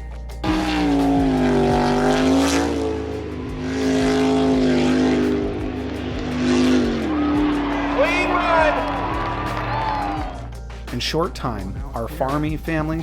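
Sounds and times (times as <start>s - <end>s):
engine running at high revs: 0.4s - 10.4s.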